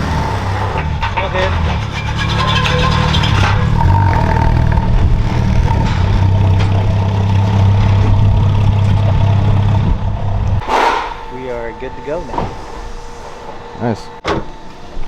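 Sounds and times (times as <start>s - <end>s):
car engine droning: 0.0s - 10.6s.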